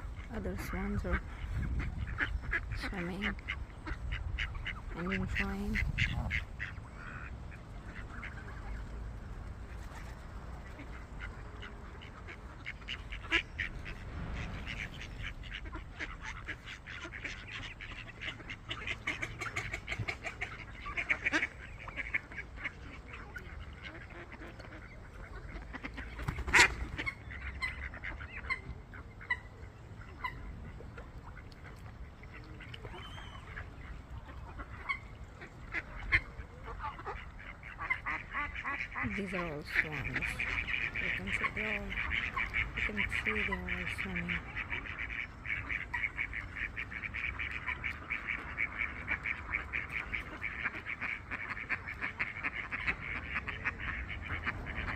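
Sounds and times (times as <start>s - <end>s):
low steady rumble: 0.0s - 26.1s
waterfowl quacking and honking: 0.0s - 54.9s.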